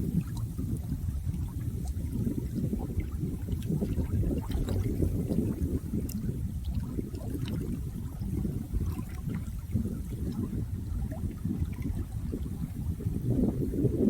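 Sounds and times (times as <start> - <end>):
water churning rush: 0.0 - 13.6
faint ticks: 6.0 - 6.3.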